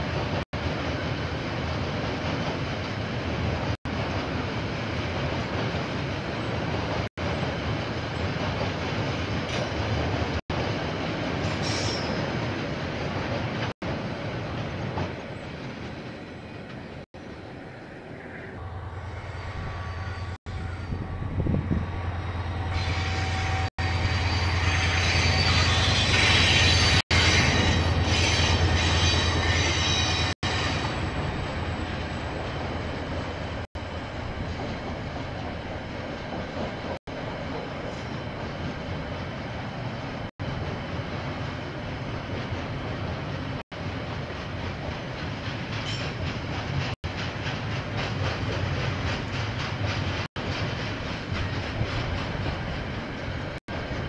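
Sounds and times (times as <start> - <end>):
train low drone: 2.6 - 54.0
train wheels squealing on rails: 11.4 - 12.4, 18.2 - 34.9, 37.7 - 38.9, 44.4 - 54.0.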